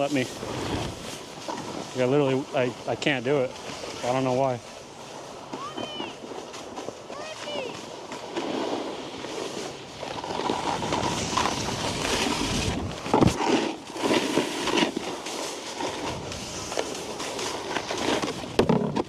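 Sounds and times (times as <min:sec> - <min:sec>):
wind on microphone: 0:00.0 - 0:02.0, 0:09.5 - 0:13.4, 0:15.8 - 0:19.0
snowboard scraping over snow: 0:00.0 - 0:19.0.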